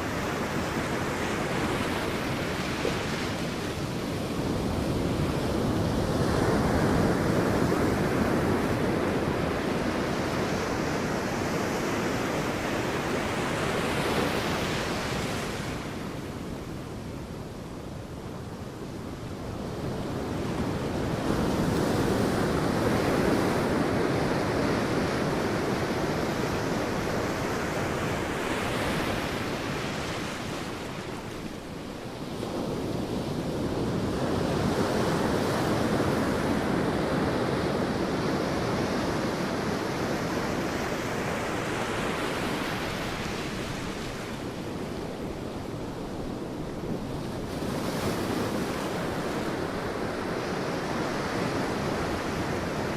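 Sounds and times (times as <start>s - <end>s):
sea waves breaking on beach: 0.0s - 16.4s
wind noise on microphone: 0.0s - 52.9s.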